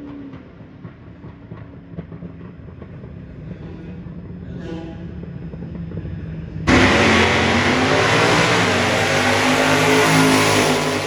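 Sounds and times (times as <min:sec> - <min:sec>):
racing car engines at speed: 0:06.7 - 0:11.0.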